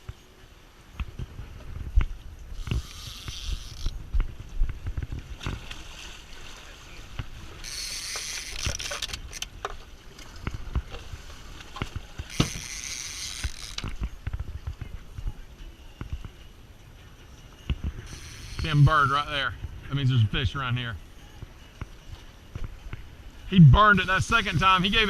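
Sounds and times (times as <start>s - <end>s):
boat engine rumble: 0.0s - 25.0s
wind buffeting microphone: 1.0s - 6.0s.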